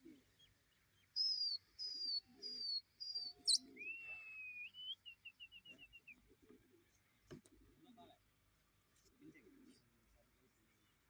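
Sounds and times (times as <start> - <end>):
songbird whistling: 1.2 - 6.1.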